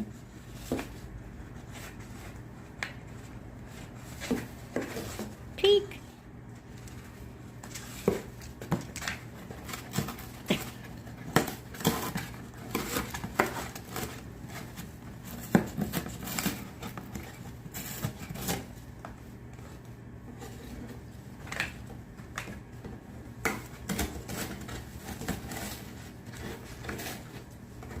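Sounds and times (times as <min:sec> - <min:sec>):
parrot chewing cardboard: 0:06.7 - 0:28.0.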